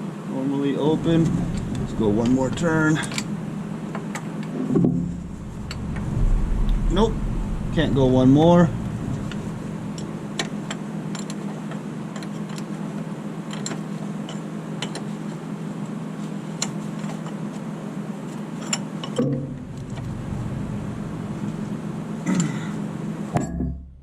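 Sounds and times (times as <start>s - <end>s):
steady low hum: 0.0s - 12.2s, 19.1s - 24.0s.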